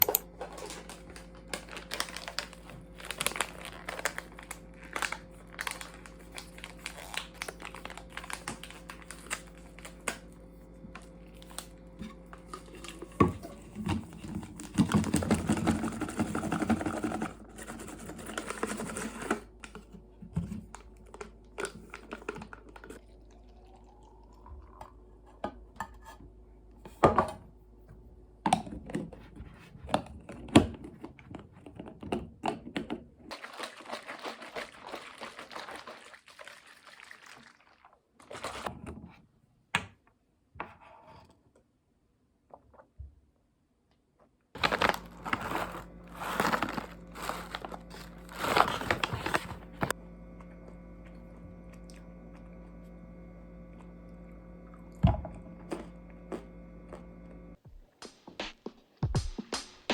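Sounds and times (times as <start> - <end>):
electrical hum: 0.0 - 30.8, 44.6 - 58.1
rustling noise: 44.6 - 49.9.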